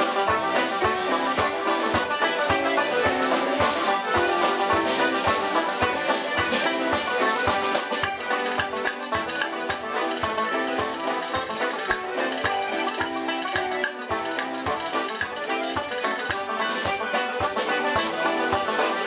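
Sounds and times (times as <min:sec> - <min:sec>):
traditional folk music: 0:00.0 - 0:19.0.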